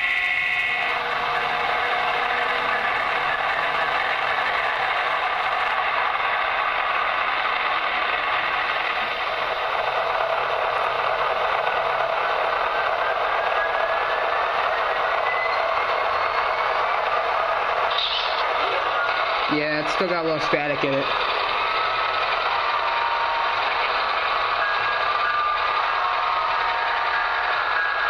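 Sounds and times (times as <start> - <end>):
model locomotive engine sound: 0.0 - 28.0.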